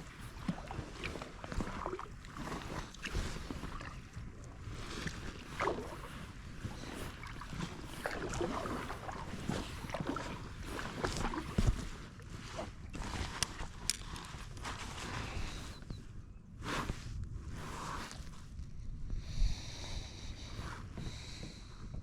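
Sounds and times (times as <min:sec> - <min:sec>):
paddle splashing in water: 0:00.0 - 0:13.7
steady low rumble: 0:09.9 - 0:22.0.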